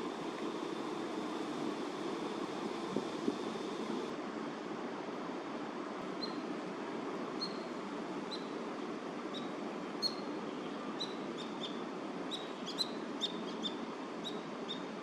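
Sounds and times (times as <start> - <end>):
small bird chirping: 11.0 - 14.8.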